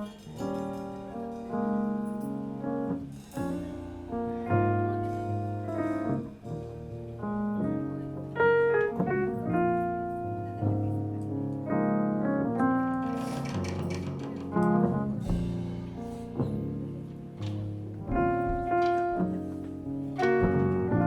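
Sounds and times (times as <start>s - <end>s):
keyboard chords: 0.0s - 21.0s
low bass line: 14.7s - 21.0s.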